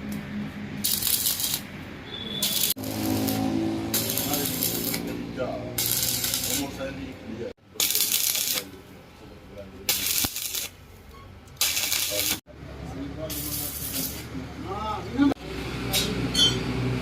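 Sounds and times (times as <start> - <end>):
arc welding crackling sizzle: 0.8 - 6.8, 7.7 - 8.8, 9.8 - 10.8, 11.5 - 12.4, 13.3 - 14.4.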